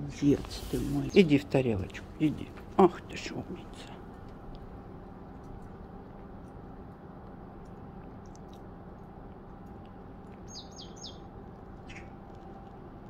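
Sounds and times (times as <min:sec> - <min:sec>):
steady background hum: 0:00.0 - 0:13.0
faint high bird chirps: 0:10.5 - 0:11.3, 0:11.9 - 0:12.1.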